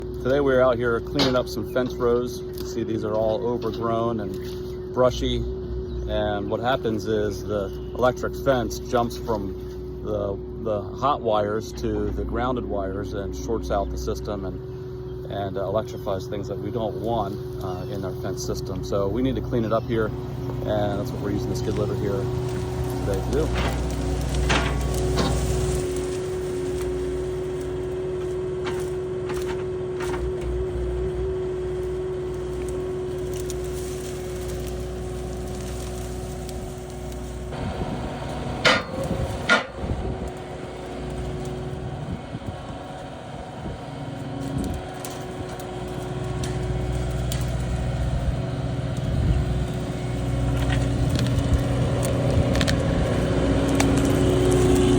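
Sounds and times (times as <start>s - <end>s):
diesel engine running: 0.0s - 54.9s
branches cracking and snapping: 16.4s - 54.9s.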